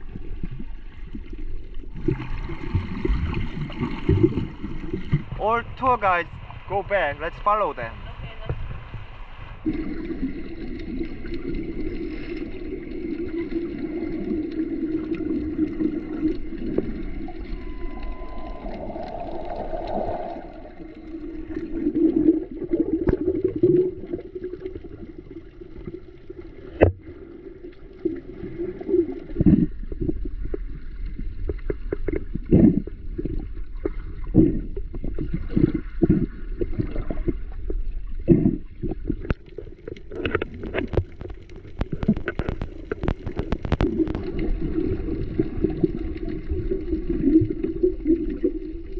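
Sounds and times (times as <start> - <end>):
water sloshing and gurgling: 0.0 - 48.9.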